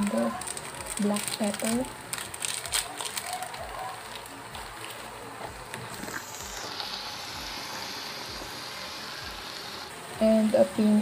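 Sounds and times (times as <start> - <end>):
food sizzling in a wok: 5.9 - 11.0.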